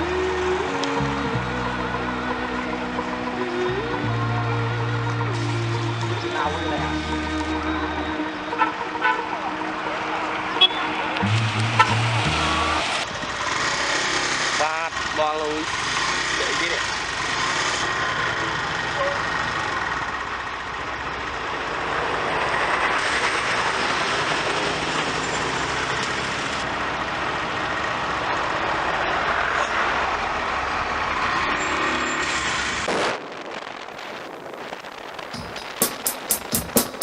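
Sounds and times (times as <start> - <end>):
wind and road noise: 0.0 - 37.0
motorbike engine running: 35.3 - 37.0.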